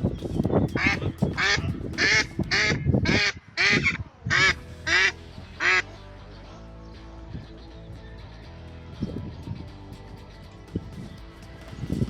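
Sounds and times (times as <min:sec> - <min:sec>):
background music: 0:00.0 - 0:12.0
ducks quacking: 0:00.8 - 0:06.0.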